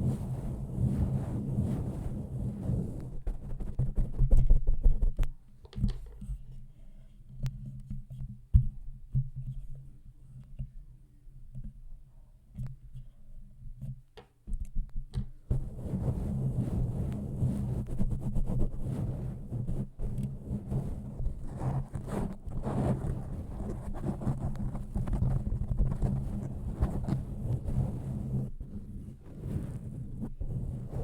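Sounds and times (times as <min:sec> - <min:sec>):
rubbing on microphone: 0:00.0 - 0:10.8, 0:12.5 - 0:31.0
soft taps and clicks: 0:13.8 - 0:15.4.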